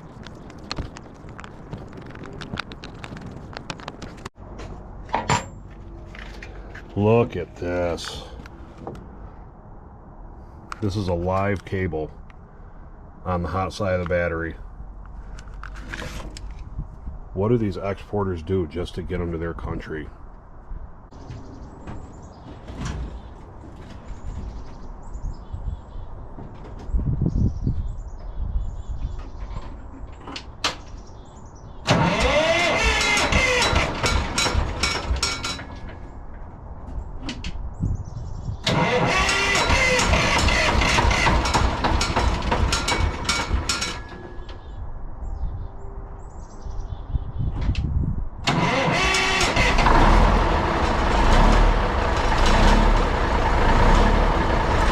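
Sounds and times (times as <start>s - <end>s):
diesel engine starter cranking: 31.8s - 36.0s, 38.6s - 44.2s, 48.4s - 54.9s.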